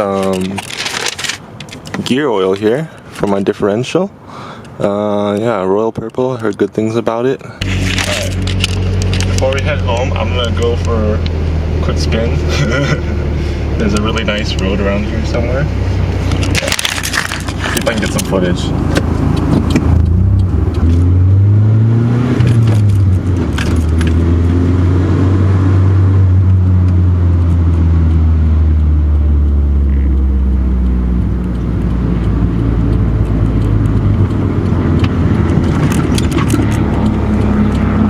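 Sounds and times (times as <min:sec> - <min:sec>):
car engine revving: 0:07.6 - 0:38.0.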